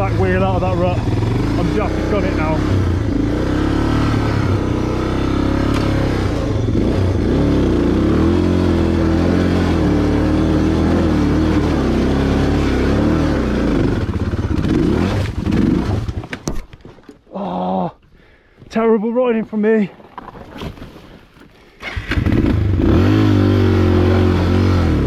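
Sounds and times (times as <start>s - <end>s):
motorcycle engine revving: 0.0s - 16.4s, 21.8s - 25.0s.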